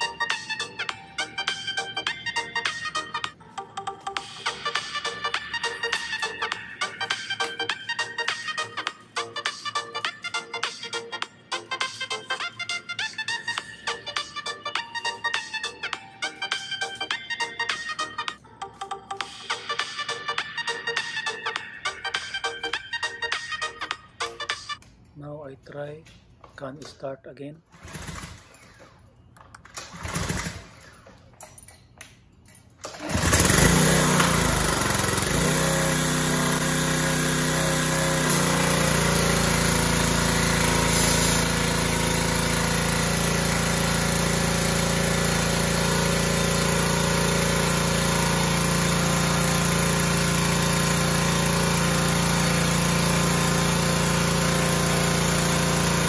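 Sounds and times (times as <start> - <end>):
small gasoline engine starting: 27.7 - 29.0, 29.6 - 31.2, 32.8 - 56.0.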